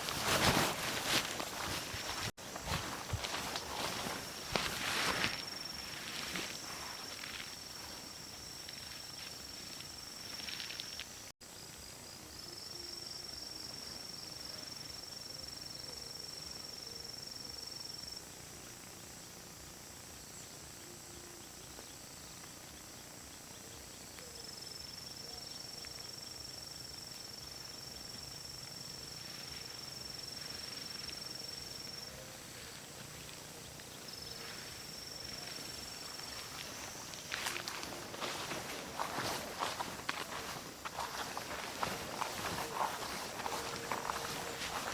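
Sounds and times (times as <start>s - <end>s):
soft rustling steps: 0.0s - 11.2s, 29.2s - 44.9s
insect drone: 0.0s - 44.9s.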